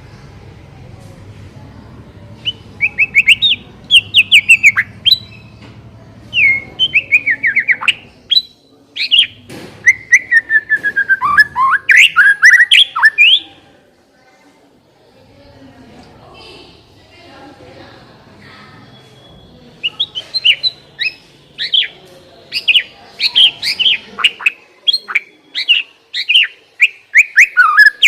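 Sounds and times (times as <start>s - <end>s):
bird singing whistled phrases: 2.4s - 5.5s, 6.3s - 13.5s, 19.2s - 28.0s.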